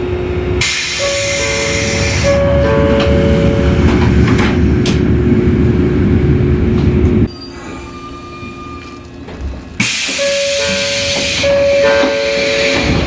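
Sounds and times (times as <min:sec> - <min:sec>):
two-tone door chime: 0:00.9 - 0:03.9, 0:10.1 - 0:13.0
low rumble with hum: 0:02.5 - 0:07.3.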